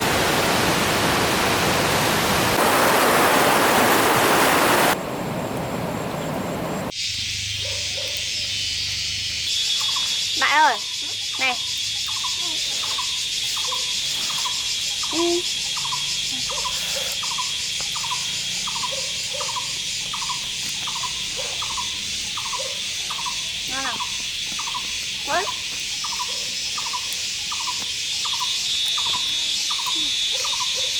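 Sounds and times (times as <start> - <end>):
waterfall roaring: 0.0 - 6.9
insects chirring: 4.4 - 30.9
lower insect calls: 5.0 - 30.9
short repeated insect call: 5.4 - 30.9.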